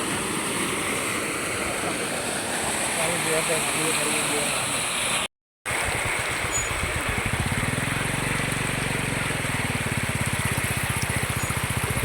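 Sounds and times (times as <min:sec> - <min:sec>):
small engine running: 0:05.7 - 0:12.0.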